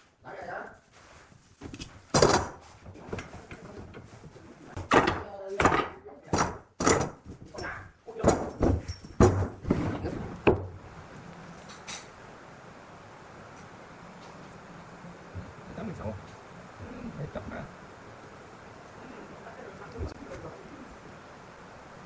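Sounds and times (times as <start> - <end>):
wood knocks and thuds: 4.8 - 7.5, 8.2 - 10.8.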